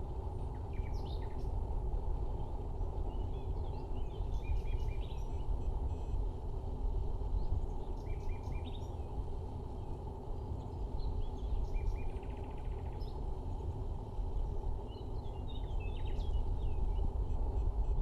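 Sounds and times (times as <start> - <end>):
small birds chirping: 0.4 - 1.6, 2.3 - 5.6, 7.3 - 13.6, 14.4 - 17.6.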